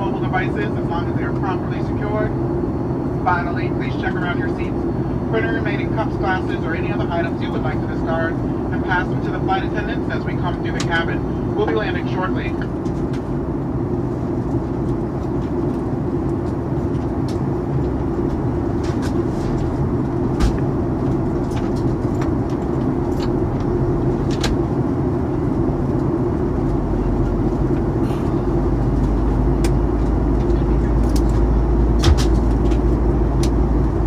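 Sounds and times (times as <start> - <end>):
airliner cabin drone: 0.0 - 34.0
low rumble: 16.9 - 34.0.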